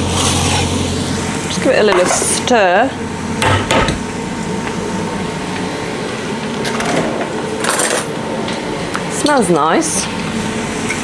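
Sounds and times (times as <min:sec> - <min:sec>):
utensil scraping pan: 0:00.0 - 0:01.0.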